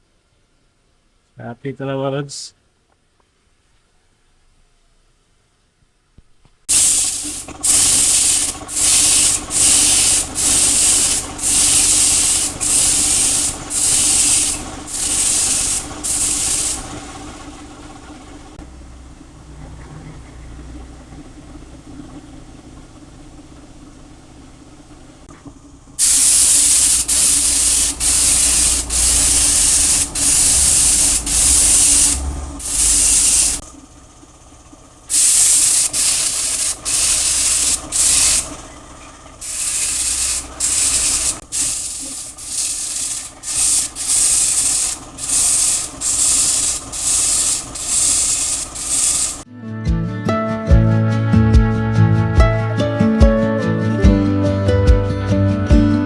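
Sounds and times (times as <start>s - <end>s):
spray gun hissing: 6.7s - 17.0s, 26.0s - 33.6s, 35.1s - 38.6s, 39.4s - 49.4s
low hum: 9.8s - 46.0s.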